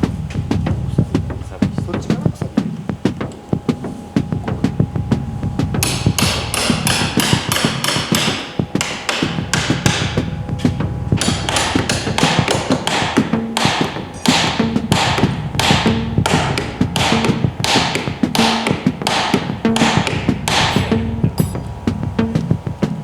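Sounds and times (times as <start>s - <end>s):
hammer striking wood: 5.8s - 21.7s.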